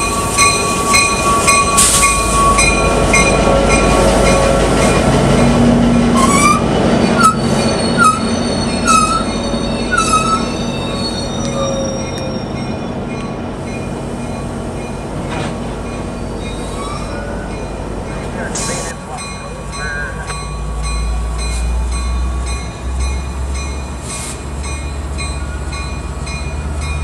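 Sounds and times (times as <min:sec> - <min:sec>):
train rumbling past: 0:00.0 - 0:27.0
high-pitched wheel squeal: 0:06.2 - 0:12.6
short squeaks and clicks: 0:10.1 - 0:12.4.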